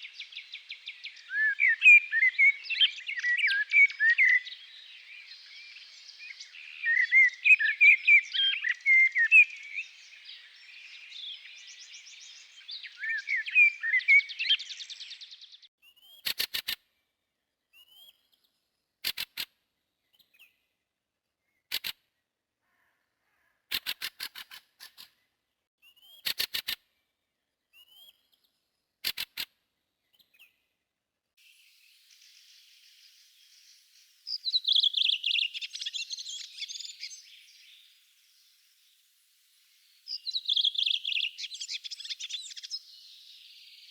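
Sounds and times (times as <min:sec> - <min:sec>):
songbirds singing: 0:00.0 - 0:16.4, 0:31.4 - 0:43.9.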